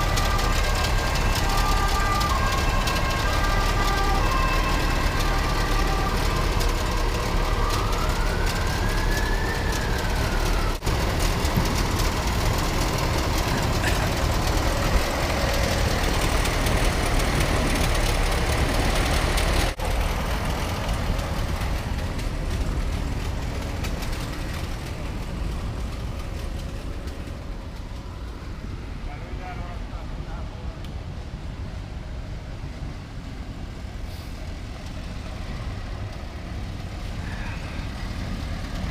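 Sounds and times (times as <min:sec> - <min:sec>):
passing vehicles road noise: 0:00.0 - 0:38.9.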